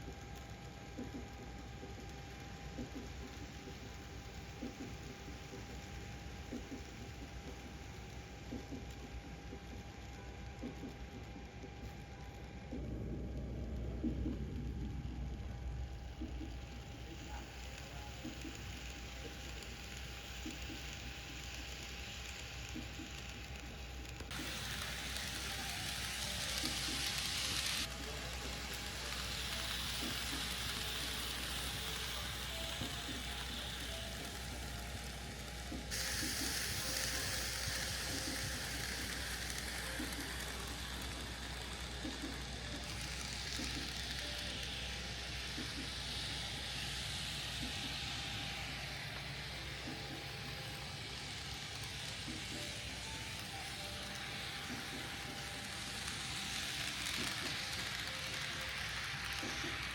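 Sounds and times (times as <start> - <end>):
model train rolling on track: 0.0 - 59.9
faint ticks: 0.1 - 15.3.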